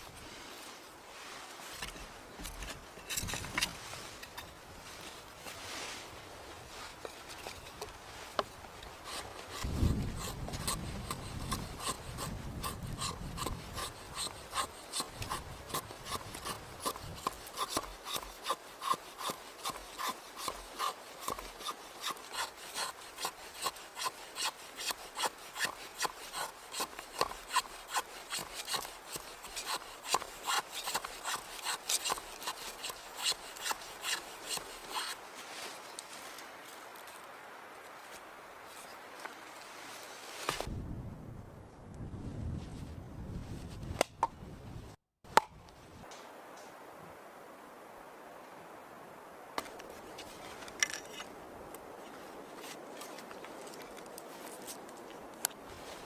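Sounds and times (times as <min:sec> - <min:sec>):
hand saw cutting wood: 0:06.8 - 0:35.8.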